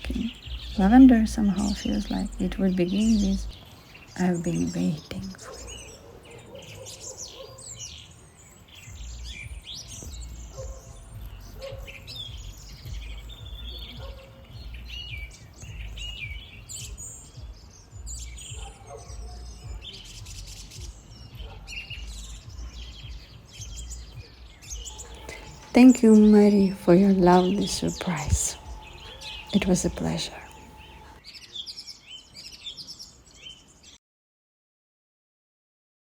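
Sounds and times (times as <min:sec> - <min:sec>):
birds chirping and singing: 0:00.0 - 0:34.0.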